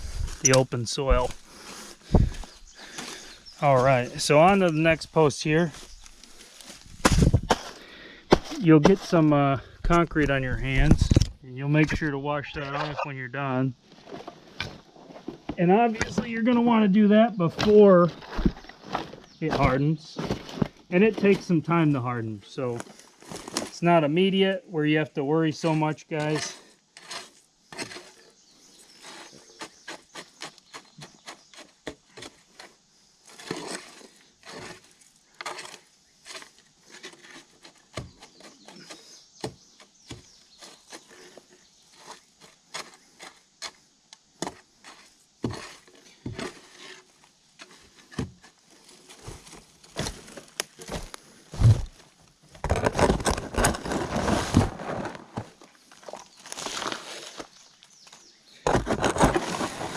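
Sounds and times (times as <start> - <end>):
scuffing and crunching: 0.0 - 11.1, 17.5 - 21.6, 44.5 - 59.9
scraping concrete mix: 0.0 - 13.2, 25.6 - 28.3, 52.6 - 57.6, 58.6 - 59.9.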